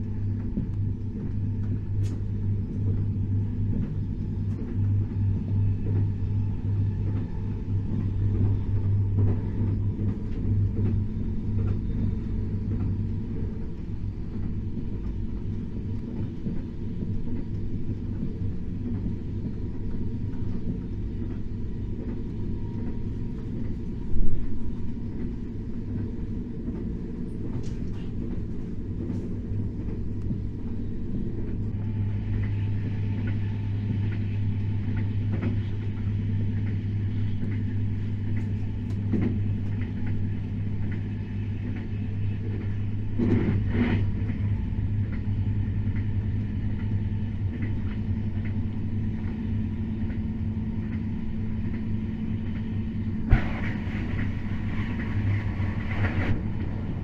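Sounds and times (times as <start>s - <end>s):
high-speed train rumbling: 0.0s - 57.0s.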